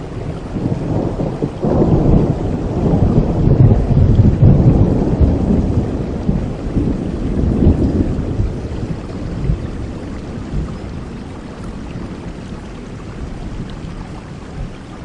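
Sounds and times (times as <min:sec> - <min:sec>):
heavy rain: 0:00.0 - 0:15.0
thunder rumbling: 0:00.0 - 0:15.0.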